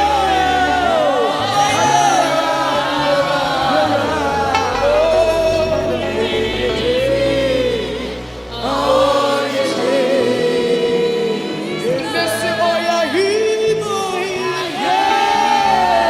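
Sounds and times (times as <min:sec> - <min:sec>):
gospel choir singing: 0:00.0 - 0:16.0
band playing: 0:04.0 - 0:07.3.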